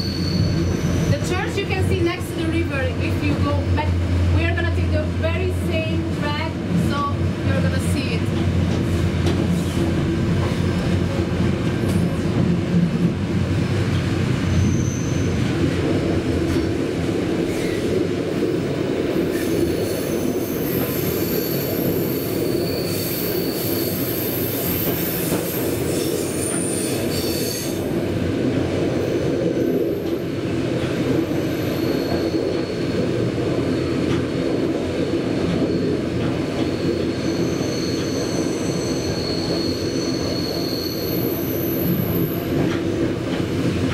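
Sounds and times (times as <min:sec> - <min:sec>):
high metallic squeal: 0:00.0 - 0:01.1, 0:14.5 - 0:15.4
train wheels rumbling on rails: 0:00.0 - 0:43.9.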